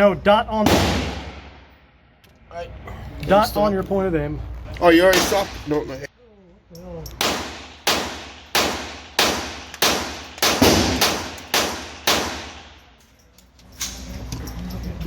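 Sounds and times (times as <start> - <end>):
echoing gunshots: 0.6 - 1.8, 5.1 - 5.6, 7.2 - 12.9.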